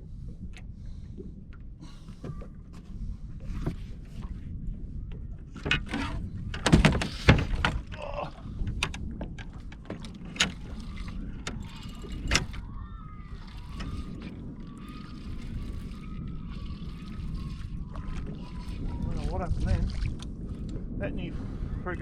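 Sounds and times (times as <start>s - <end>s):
steady low rumble: 0.0s - 6.9s, 7.5s - 22.0s
knocks and bumps in boat: 1.9s - 20.3s.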